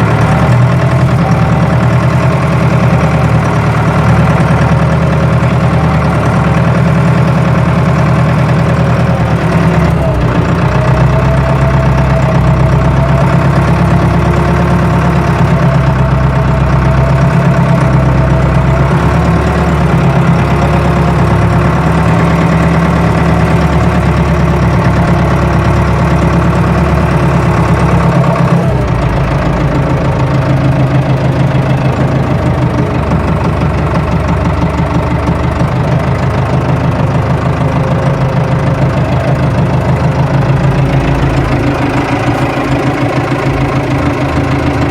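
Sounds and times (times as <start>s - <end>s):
tractor engine droning: 0.0s - 44.9s.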